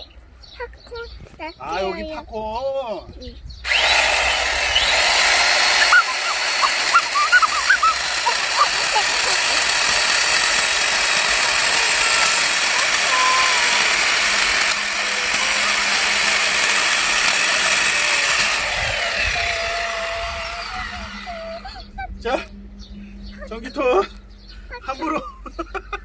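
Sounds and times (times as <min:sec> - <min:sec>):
electric chainsaw cutting wood: 0:03.6 - 0:21.8.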